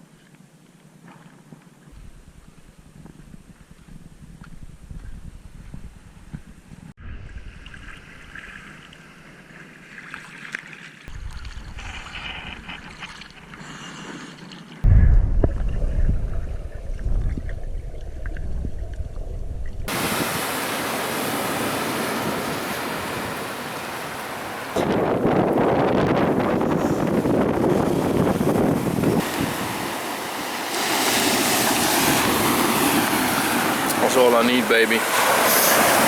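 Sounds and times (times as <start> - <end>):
wind buffeting microphone: 2.0 - 8.3, 14.8 - 30.4
sea surf washing: 19.9 - 36.0.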